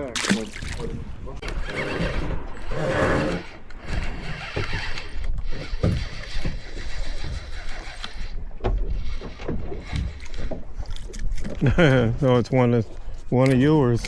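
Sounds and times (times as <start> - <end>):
water sloshing against boat hull: 0.0 - 2.5, 4.4 - 11.7.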